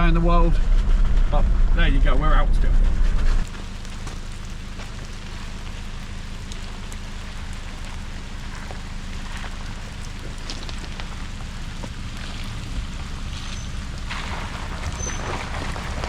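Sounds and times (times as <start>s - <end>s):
low engine drone: 0.0s - 16.0s
rain falling on a vehicle: 3.4s - 16.0s.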